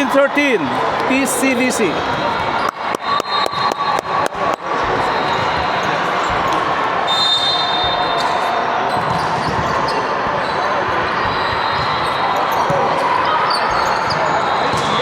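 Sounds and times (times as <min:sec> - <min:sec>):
hubbub of gym hall: 0:00.0 - 0:15.0
ball slaps and clapping: 0:02.6 - 0:04.7
shoe squeak: 0:02.6 - 0:05.6.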